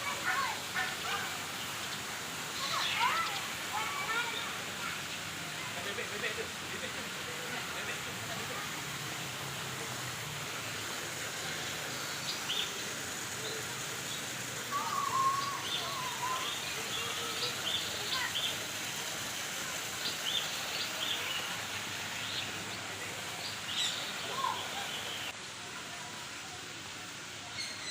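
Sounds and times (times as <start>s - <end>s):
birds chirping: 0.0s - 8.6s, 10.7s - 18.7s, 19.7s - 25.3s
steady background hiss: 0.0s - 27.9s
low warbling bird call: 14.7s - 16.6s.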